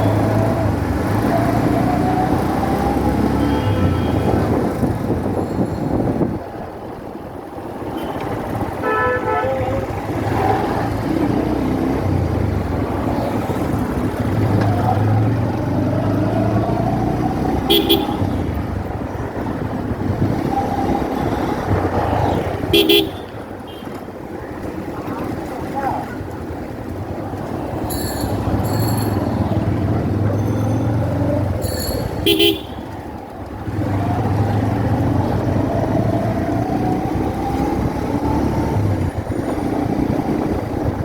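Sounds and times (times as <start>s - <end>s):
road traffic noise: 0.0s - 41.0s
vehicle horn toots: 3.4s - 4.5s, 8.0s - 9.9s, 17.6s - 18.5s, 22.7s - 23.9s, 31.7s - 33.0s.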